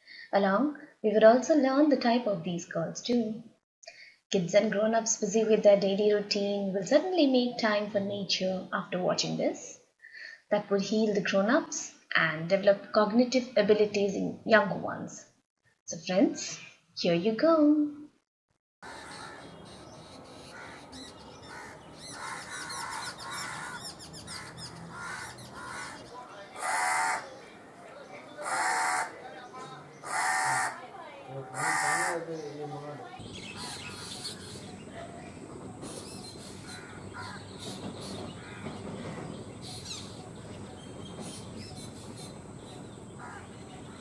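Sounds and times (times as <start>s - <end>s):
lower harsh bird call: 18.8s - 30.8s.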